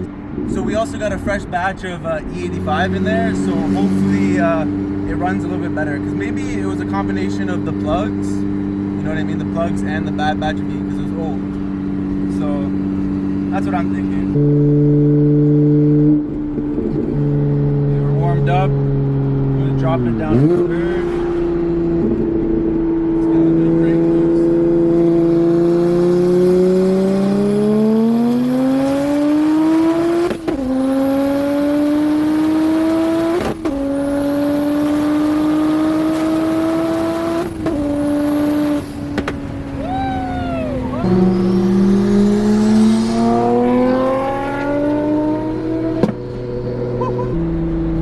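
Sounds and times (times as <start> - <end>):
car engine accelerating: 0.0 - 48.0
high whine: 38.2 - 45.8
turbo whistle: 39.8 - 43.7.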